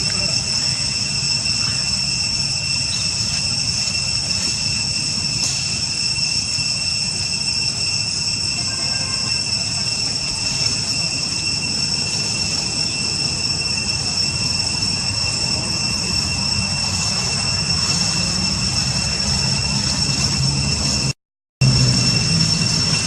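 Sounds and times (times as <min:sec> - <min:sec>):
high-pitched whine: 0:00.0 - 0:23.0
low rumble: 0:14.6 - 0:23.0.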